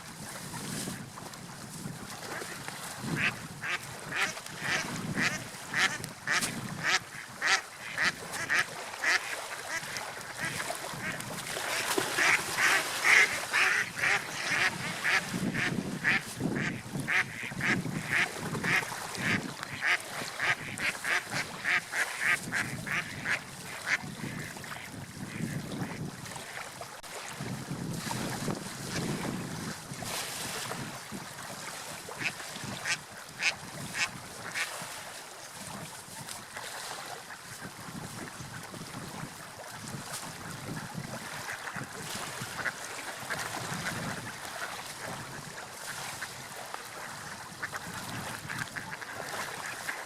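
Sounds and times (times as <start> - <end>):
ducks quacking: 3.2 - 26.5, 32.2 - 34.8, 48.4 - 50.0
low wind rush: 13.3 - 19.7.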